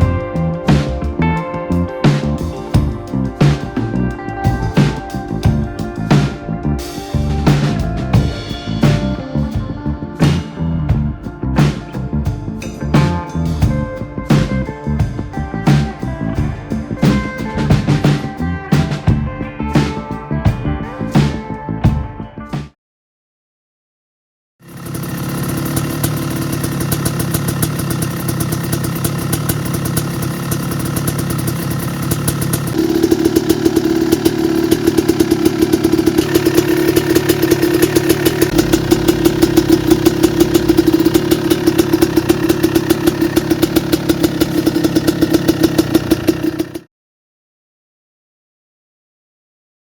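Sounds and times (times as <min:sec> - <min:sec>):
two-stroke engine fast idle: 0:24.6 - 0:46.9.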